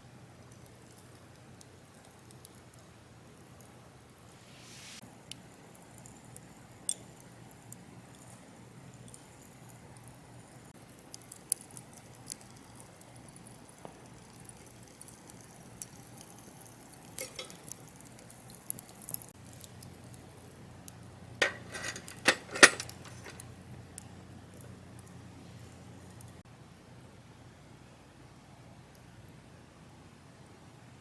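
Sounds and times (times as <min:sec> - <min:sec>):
sharp metallic clinks: 0:21.4 - 0:23.4.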